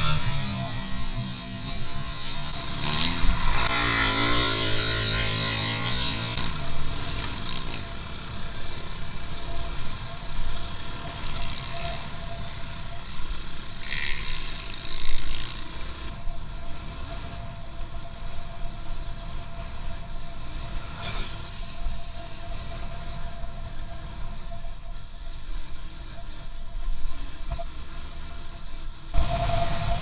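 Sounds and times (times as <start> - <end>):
car engine and road noise: 0.0 - 30.0
faint steady whine: 0.0 - 30.0.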